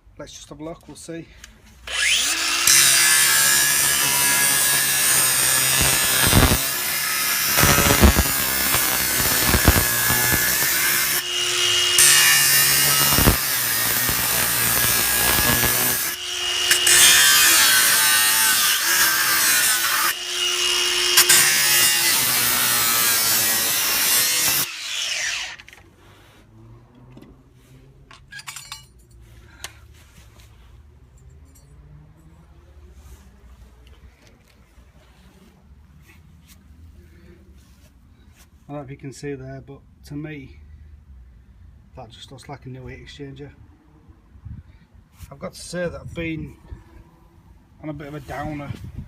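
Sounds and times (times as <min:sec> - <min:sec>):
power tool cutting metal: 0:01.9 - 0:25.8.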